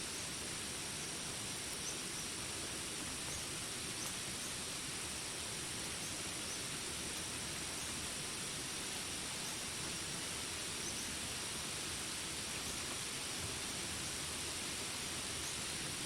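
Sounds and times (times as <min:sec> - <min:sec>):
rain hiss: 0:00.0 - 0:16.0
high insect drone: 0:06.0 - 0:16.0.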